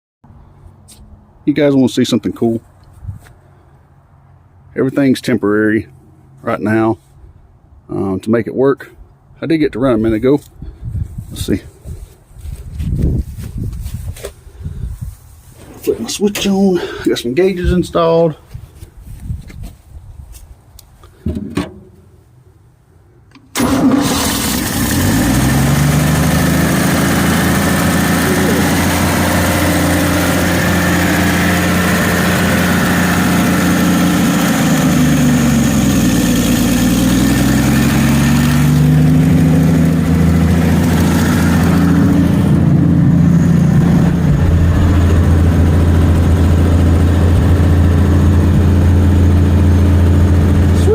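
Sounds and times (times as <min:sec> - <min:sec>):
pickup engine starting and running: 0:23.3 - 0:50.9.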